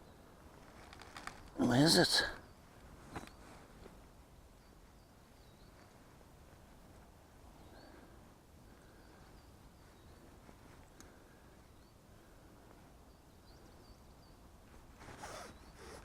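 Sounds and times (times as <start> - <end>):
small birds chirping: 7.5 - 10.4, 11.0 - 14.6.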